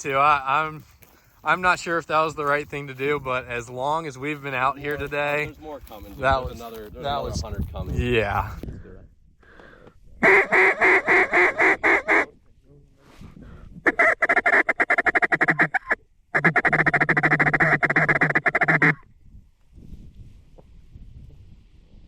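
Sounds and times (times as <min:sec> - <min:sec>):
duck call quacks: 0:10.2 - 0:12.4, 0:13.8 - 0:19.0
duck call rapid chatter: 0:10.2 - 0:12.4, 0:13.9 - 0:19.0.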